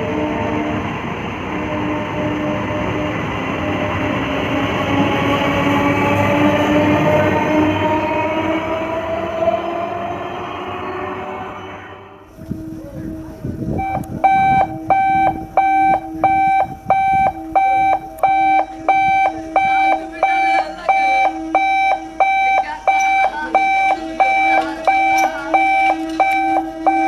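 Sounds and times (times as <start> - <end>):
steady low hum: 11.8 - 27.0
electronic alarm beeping: 13.7 - 27.0.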